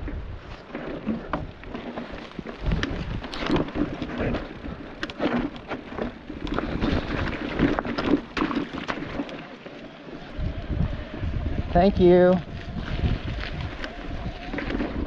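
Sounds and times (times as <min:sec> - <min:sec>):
bike rattling over rocky trail: 0:00.0 - 0:15.0
wind rumbling on microphone: 0:00.0 - 0:15.0.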